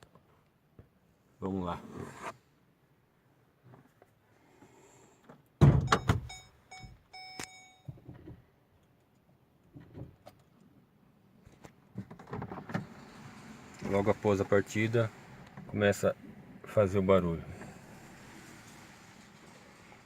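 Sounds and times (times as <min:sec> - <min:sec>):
car door thump: 0:05.6 - 0:06.3
short electronic beeps: 0:05.9 - 0:07.9.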